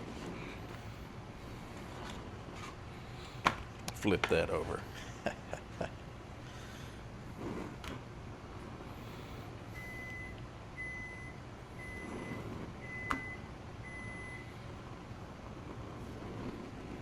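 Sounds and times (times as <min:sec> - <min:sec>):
appliance timer beeping: 0:09.7 - 0:14.7.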